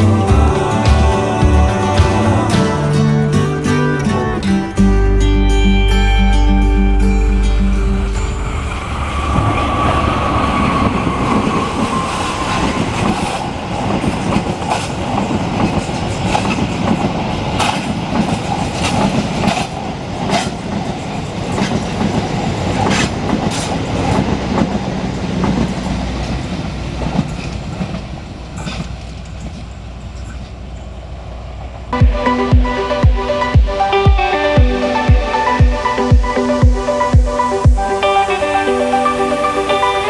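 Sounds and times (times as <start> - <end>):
train rumbling: 0.0 - 40.0
wheels clicking over rail joints: 10.8 - 30.9.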